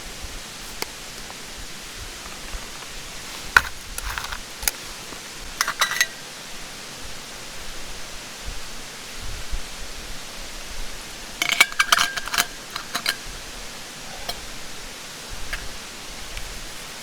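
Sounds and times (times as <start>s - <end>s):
metal camp gear clinking: 0.7s - 6.3s, 11.4s - 16.4s.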